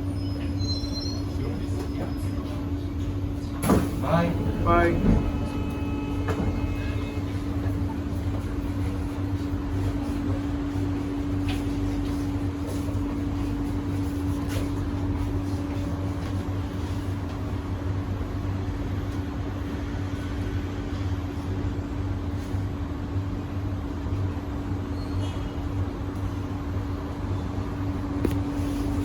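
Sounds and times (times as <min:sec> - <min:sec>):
train car low hum: 0:00.0 - 0:29.0
mid-pitched whine: 0:03.4 - 0:11.1.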